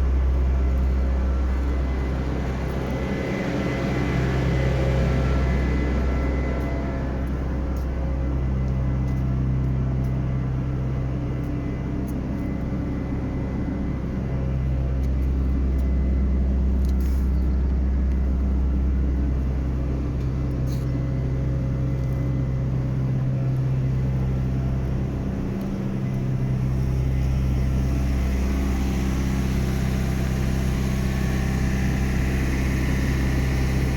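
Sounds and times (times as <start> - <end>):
heavy engine idling: 0.0 - 33.9.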